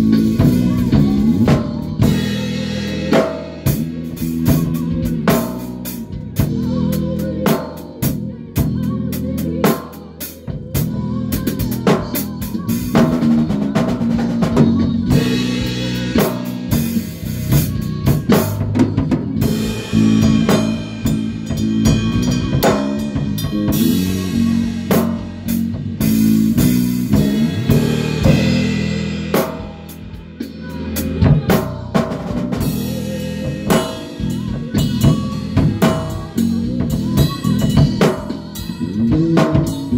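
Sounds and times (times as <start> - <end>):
bass: 0.0 - 39.9
drum kit beat: 0.0 - 39.9
held pitched notes: 10.7 - 39.9.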